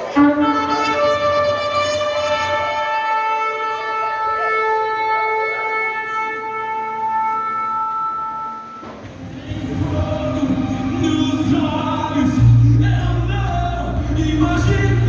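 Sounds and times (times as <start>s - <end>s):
shofar blast: 0.0s - 9.3s.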